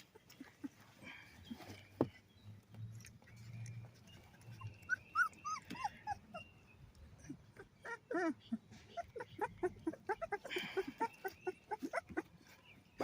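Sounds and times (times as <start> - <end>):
puppies whimpering: 3.4 - 13.0.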